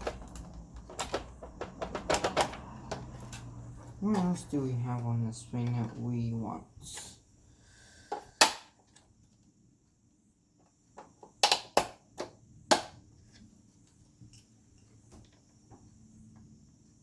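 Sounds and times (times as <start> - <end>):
clicks and knocks of parts handled: 0.0 - 4.3.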